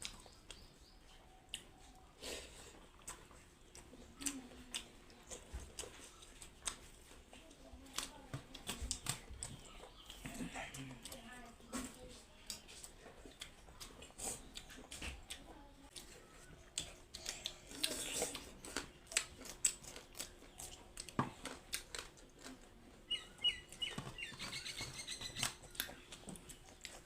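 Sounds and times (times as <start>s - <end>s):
bird chirping: 23.1s - 26.2s
eating and food handling clicks: 25.3s - 27.0s.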